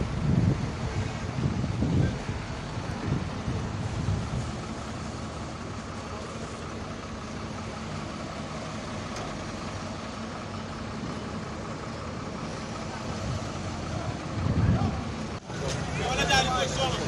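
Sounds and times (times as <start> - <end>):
tyres on the road: 0.0 - 17.0
vehicle engines running: 0.0 - 17.0.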